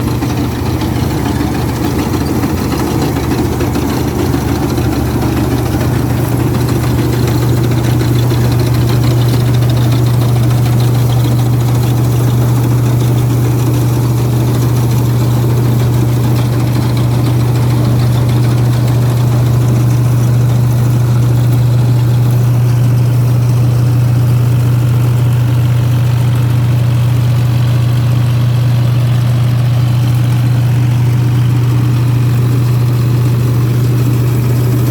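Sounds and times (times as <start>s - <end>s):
tractor diesel engine humming: 0.0s - 34.9s.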